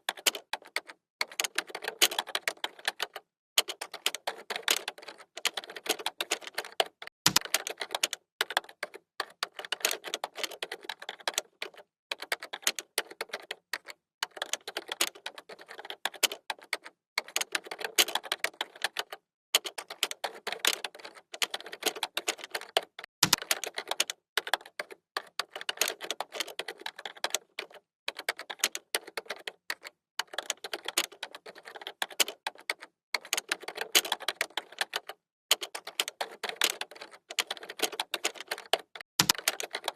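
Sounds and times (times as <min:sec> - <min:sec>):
keyboard typing clicks: 0:25.4 - 0:39.9.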